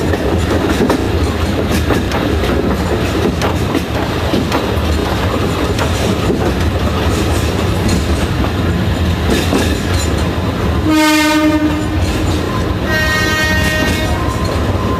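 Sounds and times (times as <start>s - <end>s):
train rumble and wheel clatter: 0.0s - 14.9s
train horn: 10.8s - 14.5s.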